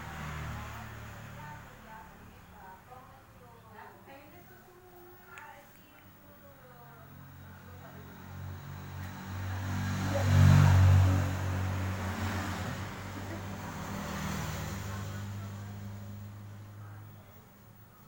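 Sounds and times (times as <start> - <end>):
vehicle engine passing by: 0.0 - 2.8, 7.4 - 17.4.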